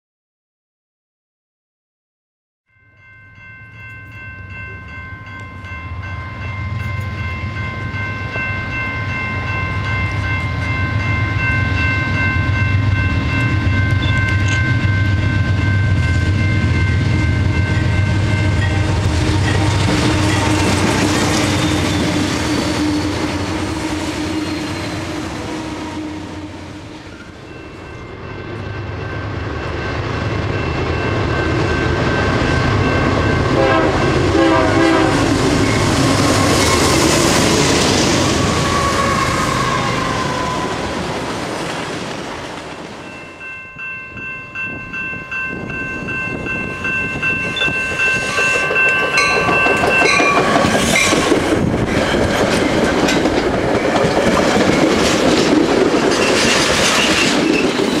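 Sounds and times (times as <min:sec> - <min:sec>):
train air horn: 0:17.4 - 0:21.0, 0:21.6 - 0:27.3, 0:33.5 - 0:36.9, 0:38.2 - 0:40.9.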